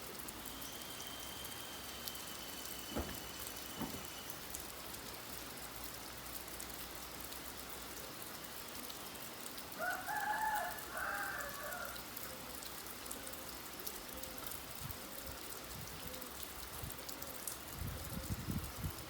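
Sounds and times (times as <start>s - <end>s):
rain falling: 0.0s - 19.0s
rooster crowing: 9.8s - 12.0s.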